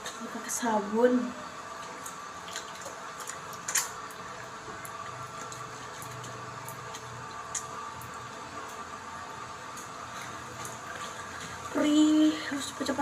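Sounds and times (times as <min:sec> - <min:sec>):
steady bathroom hum: 0:00.0 - 0:13.0
soap lather squishing on face: 0:01.8 - 0:08.9.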